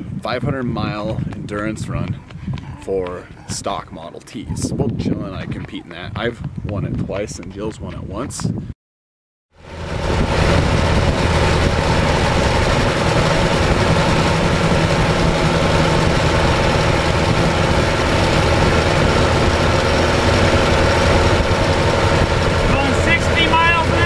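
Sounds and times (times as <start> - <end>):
wind and road rush: 0.0 - 8.7, 9.6 - 24.0
car engine running: 9.6 - 24.0.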